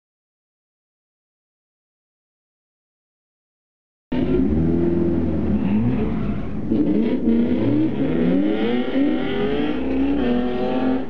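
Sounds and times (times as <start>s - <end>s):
car engine revving: 4.1s - 11.0s.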